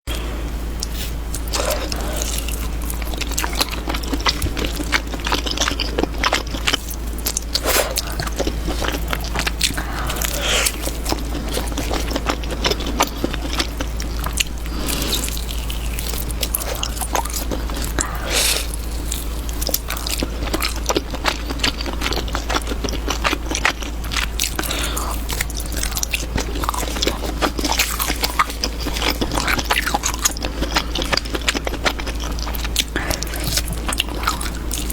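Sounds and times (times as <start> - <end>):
person chewing sticky food: 0.1 - 34.9
steady low hum: 0.1 - 34.9.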